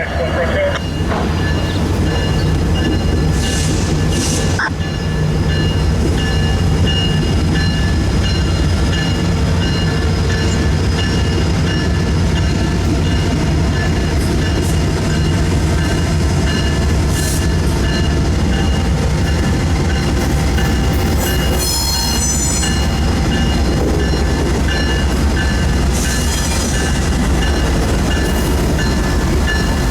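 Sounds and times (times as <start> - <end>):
freight train rumbling past: 0.0 - 29.9
train wheels squealing: 1.4 - 4.8, 20.5 - 23.1, 25.9 - 27.0.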